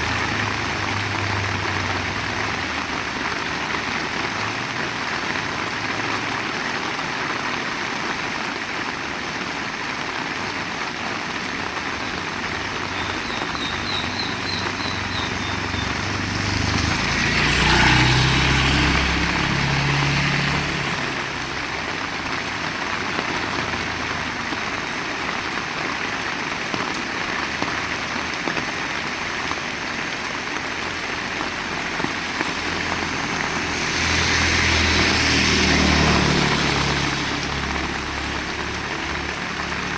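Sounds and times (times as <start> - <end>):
heavy rain: 0.0 - 39.9
vehicle engine passing: 12.9 - 22.1, 31.0 - 39.9.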